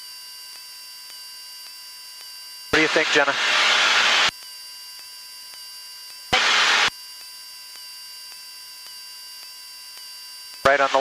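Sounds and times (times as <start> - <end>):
faint whining tones: 0.0 - 11.0
electrical hum: 0.4 - 11.0
burst of radio hiss: 2.8 - 4.3, 6.4 - 6.9.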